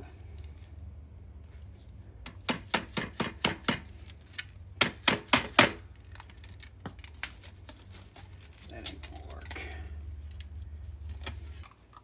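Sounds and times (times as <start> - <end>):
sharp taps on metal: 2.2 - 3.9.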